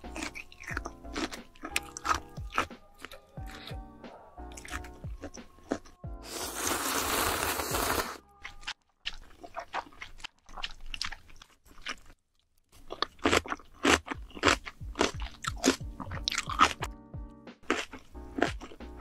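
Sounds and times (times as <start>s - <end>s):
crisp crunching while chewing: 0.0s - 3.8s, 4.5s - 16.9s, 17.6s - 19.0s
quiet chewing: 0.0s - 3.8s, 4.5s - 6.0s, 8.4s - 16.9s
slurp from a spoon: 6.2s - 8.2s.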